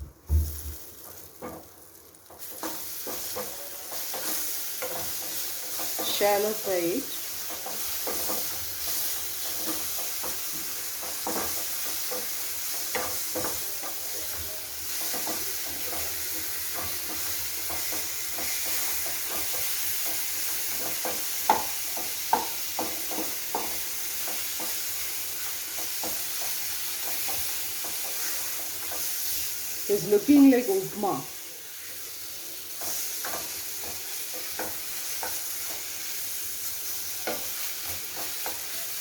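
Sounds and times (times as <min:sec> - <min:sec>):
paste sizzling in oil: 0:00.4 - 0:39.0
spatula scraping pan: 0:02.4 - 0:38.9
sharp knocks against pan: 0:19.2 - 0:24.8.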